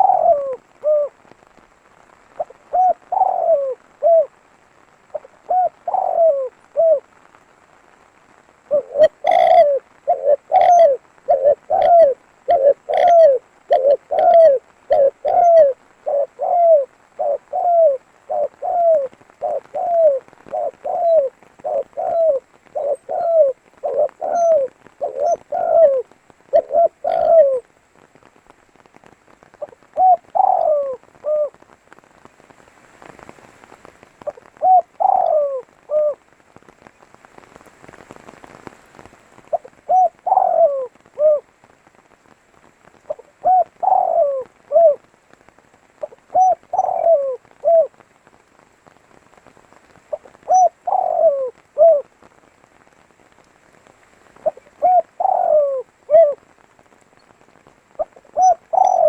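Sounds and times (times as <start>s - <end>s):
dove cooing: 0.0s - 1.2s, 2.3s - 4.4s, 5.0s - 7.1s, 8.5s - 27.7s, 29.6s - 31.7s, 34.2s - 36.3s, 39.5s - 41.6s, 43.0s - 48.0s, 50.1s - 52.2s, 54.3s - 59.0s
faint hiss: 0.0s - 59.0s.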